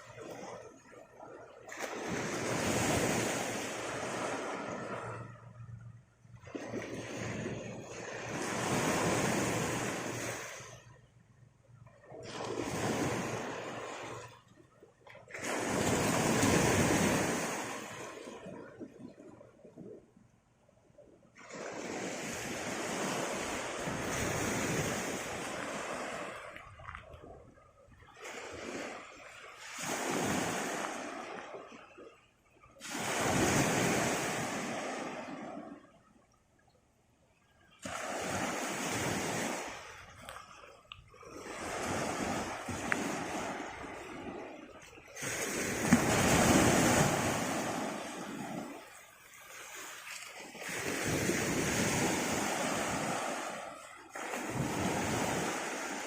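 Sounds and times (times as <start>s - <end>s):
sea waves breaking on shore: 0.0s - 20.2s, 21.0s - 56.0s.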